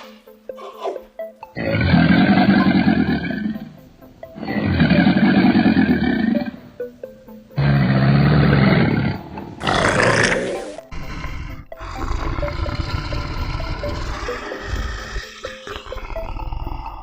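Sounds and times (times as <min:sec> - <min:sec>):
lion roaring: 0:01.6 - 0:03.8, 0:04.4 - 0:06.8, 0:07.6 - 0:17.0
lion growling: 0:01.6 - 0:06.8, 0:07.6 - 0:17.0.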